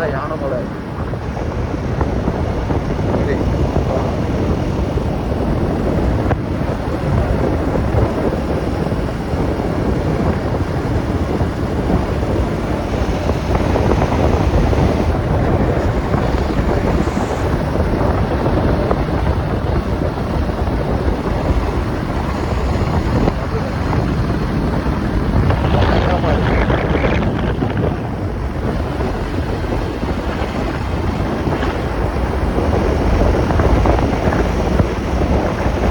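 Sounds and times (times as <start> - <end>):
wind buffeting microphone: 0.0 - 35.9
motorcycle engine: 9.8 - 35.8.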